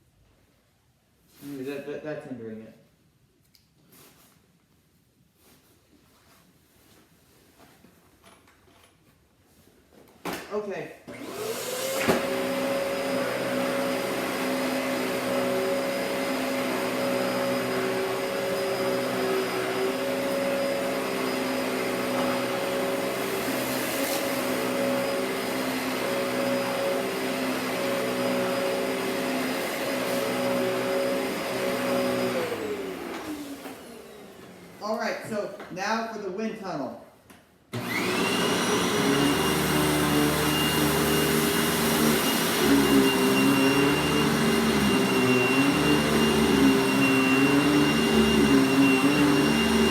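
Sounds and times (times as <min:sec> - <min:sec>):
vacuum cleaner motor whine: 0:11.1 - 0:34.8, 0:37.7 - 0:49.9.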